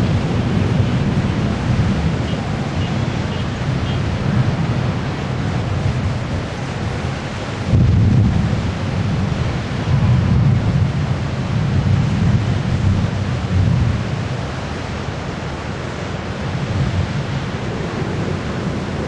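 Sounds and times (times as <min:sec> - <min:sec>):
distant thunder rumbling: 0:00.0 - 0:14.4.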